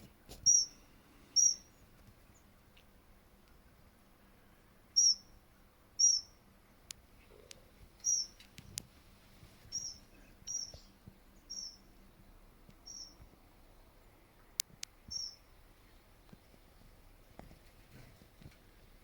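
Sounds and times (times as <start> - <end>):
small bird high-pitched calls: 0.4 - 2.5, 4.9 - 5.4, 6.0 - 6.4, 8.0 - 8.4, 9.7 - 12.0, 12.8 - 13.3, 15.1 - 15.6
faint sharp clicks: 14.4 - 15.2.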